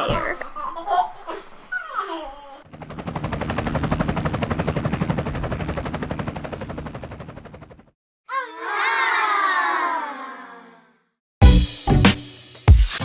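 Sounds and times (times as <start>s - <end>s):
drumroll: 2.7s - 7.8s.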